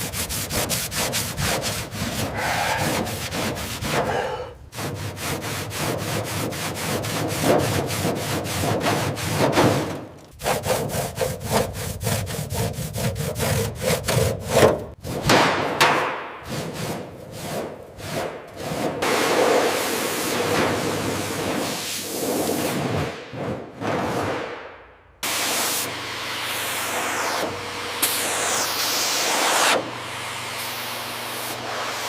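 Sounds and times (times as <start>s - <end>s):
hand tool rubbing a surface: 0.0s - 15.3s, 16.5s - 23.0s.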